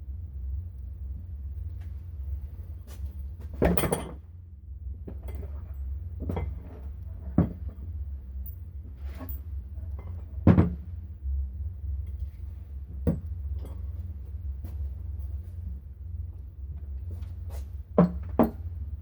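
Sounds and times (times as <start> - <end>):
low steady hum: 0.0 - 19.0
hard objects knocking and clinking: 18.0 - 18.7.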